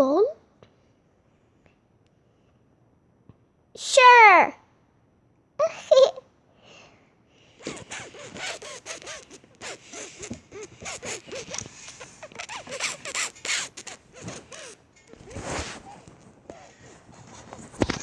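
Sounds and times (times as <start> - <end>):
scratchy rasping strokes: 7.6 - 18.0.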